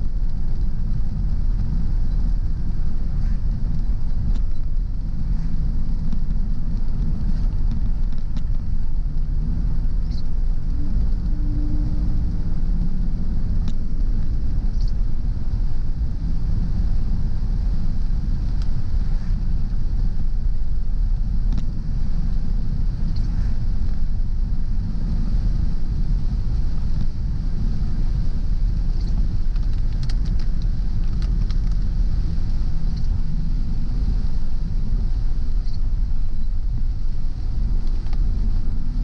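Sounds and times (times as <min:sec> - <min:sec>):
car road and engine rumble: 0:00.0 - 0:39.0
light ticks: 0:03.2 - 0:04.8, 0:05.4 - 0:11.4, 0:13.6 - 0:15.0, 0:18.4 - 0:19.8, 0:21.5 - 0:22.4, 0:28.5 - 0:33.2, 0:37.3 - 0:39.0.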